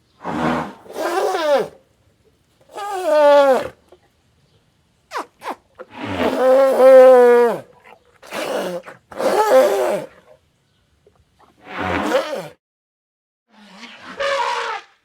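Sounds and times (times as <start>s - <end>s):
elephant trumpeting: 0.2s - 1.8s, 2.7s - 3.8s, 5.1s - 10.2s, 11.6s - 12.6s, 13.6s - 15.0s.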